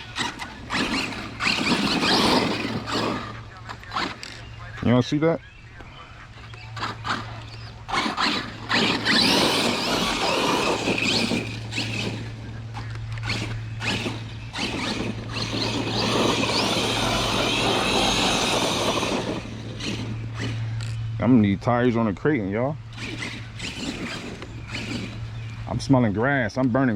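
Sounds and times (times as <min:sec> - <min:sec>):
tires spinning on wet grass: 0:00.0 - 0:03.4, 0:07.9 - 0:12.5, 0:13.2 - 0:20.6, 0:23.0 - 0:25.4
electric motor whining: 0:00.0 - 0:04.4, 0:06.8 - 0:21.0, 0:22.9 - 0:25.6.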